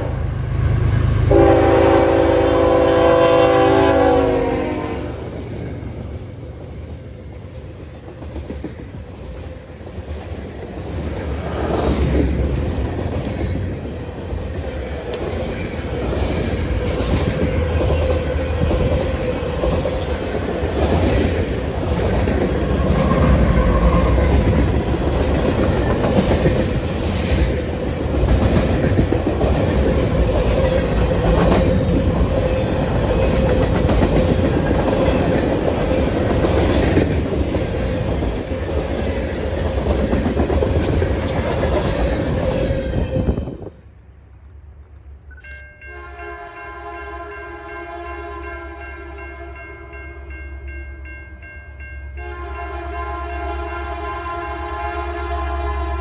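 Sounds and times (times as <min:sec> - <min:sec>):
train rumble: 0:00.0 - 0:56.0
train wheels clacking: 0:05.4 - 0:43.0.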